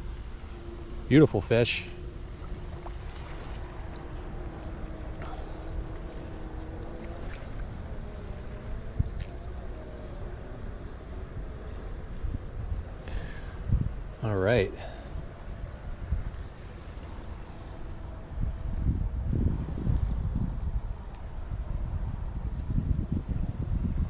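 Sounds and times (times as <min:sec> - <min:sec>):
low background hiss: 0:00.0 - 0:19.1
insect chorus trilling: 0:00.0 - 0:24.0.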